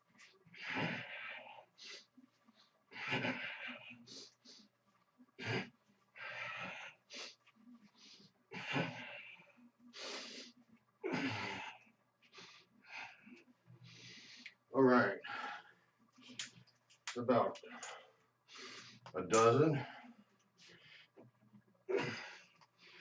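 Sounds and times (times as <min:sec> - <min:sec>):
man breathing hard: 0:00.5 - 0:02.1, 0:05.4 - 0:07.4, 0:08.0 - 0:14.6, 0:15.2 - 0:16.5, 0:17.7 - 0:19.1.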